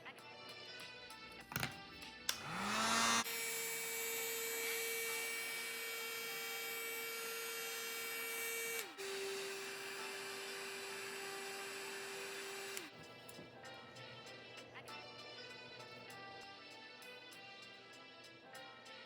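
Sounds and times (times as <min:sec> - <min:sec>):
small electric motor whine: 0:02.3 - 0:14.6.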